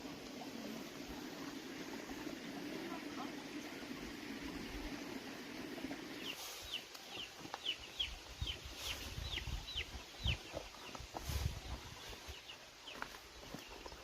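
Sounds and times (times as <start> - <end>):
chicks peeping: 6.2 - 14.0.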